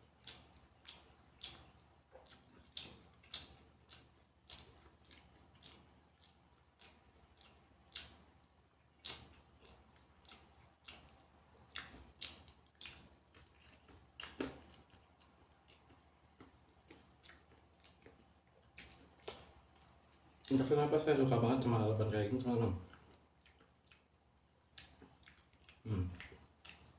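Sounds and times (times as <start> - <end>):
person chewing crunchy vegetables: 0.0 - 21.7, 22.4 - 26.9.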